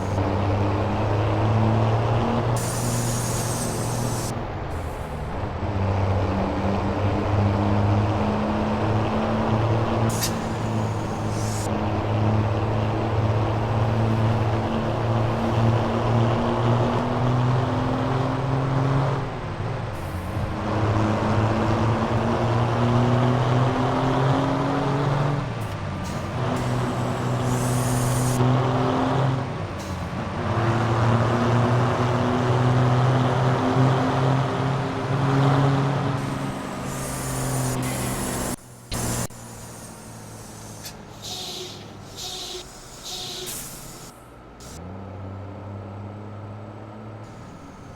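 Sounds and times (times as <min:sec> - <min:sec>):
diesel truck engine under load: 0:00.0 - 0:47.9
short air hisses: 0:02.6 - 0:04.3, 0:10.1 - 0:11.7, 0:26.1 - 0:28.4, 0:36.2 - 0:44.2.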